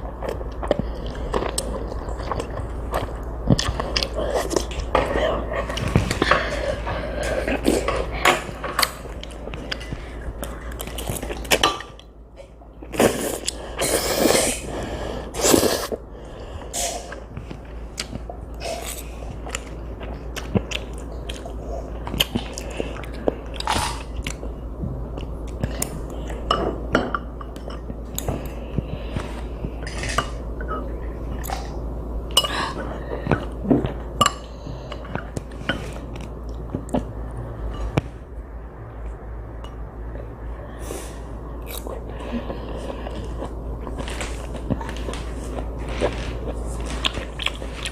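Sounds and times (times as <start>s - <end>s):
child chewing noodles: 0.0s - 12.2s, 12.8s - 26.5s, 40.2s - 47.9s.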